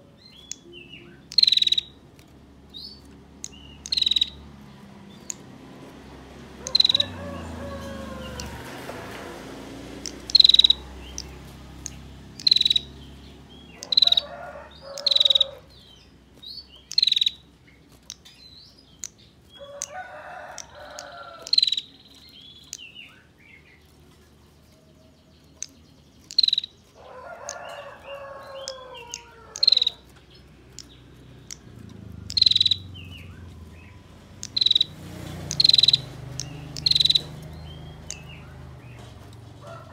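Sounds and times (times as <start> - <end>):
bird sharp short chirps: 0.4 - 2.0, 34.4 - 34.9, 35.5 - 37.4
rooster crowing: 6.6 - 9.6, 13.8 - 15.7, 19.6 - 21.7, 27.0 - 30.1, 38.1 - 39.9.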